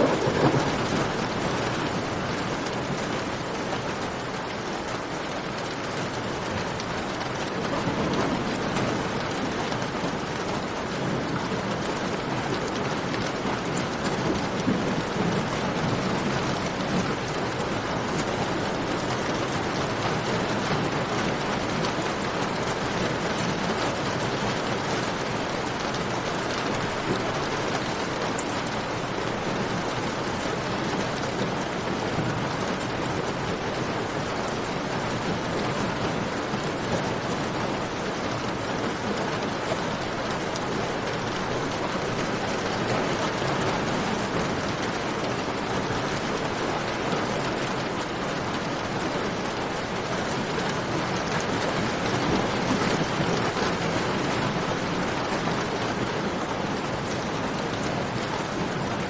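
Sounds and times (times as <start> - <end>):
rain dripping and splashing: 0.0 - 59.0.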